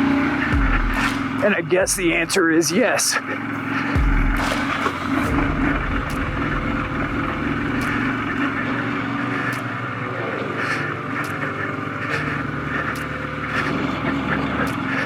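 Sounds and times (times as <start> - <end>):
motorcycle engine running: 0.0 - 15.0
sharp ticks: 3.2 - 15.0.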